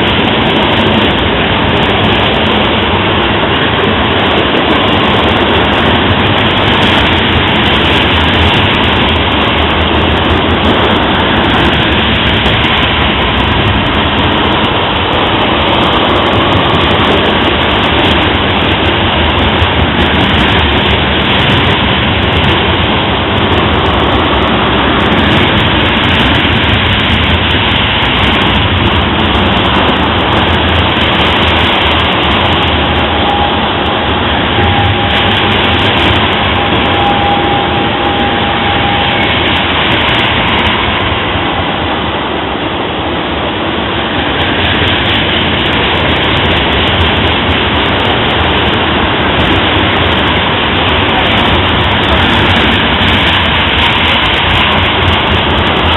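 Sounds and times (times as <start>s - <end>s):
freight train rolling over rails: 0.0s - 55.9s.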